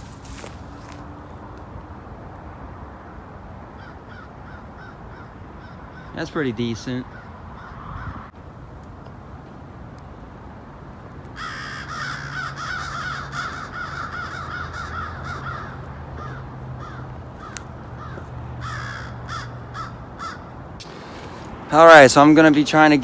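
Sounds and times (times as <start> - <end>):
crows cawing: 3.8 - 6.2, 7.0 - 8.4, 11.3 - 21.5.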